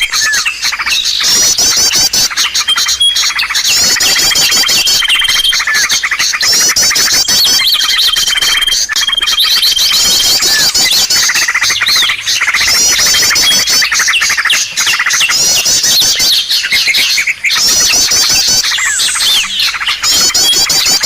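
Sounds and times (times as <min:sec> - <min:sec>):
small birds chirping and trilling: 0:00.0 - 0:21.0.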